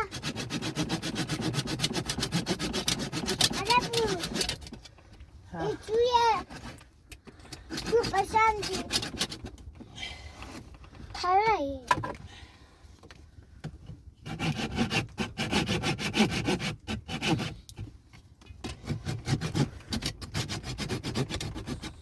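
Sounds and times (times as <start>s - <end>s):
rough rubbing or scraping strokes: 0.0s - 4.8s, 7.6s - 9.5s.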